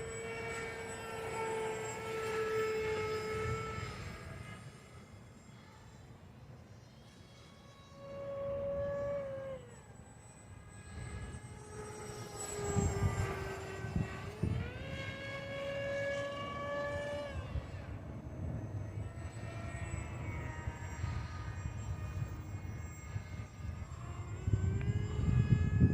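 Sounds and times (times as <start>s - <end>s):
model plane motor whining: 0.0s - 25.9s
wind on microphone: 12.5s - 17.9s, 19.4s - 25.9s.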